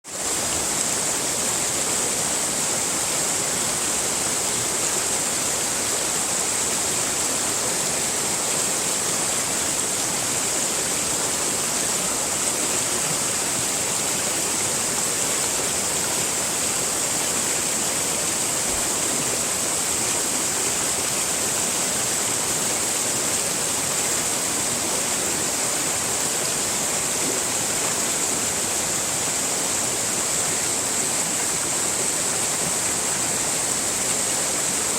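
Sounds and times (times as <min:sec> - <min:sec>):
rushing water hiss: 0:00.1 - 0:34.9.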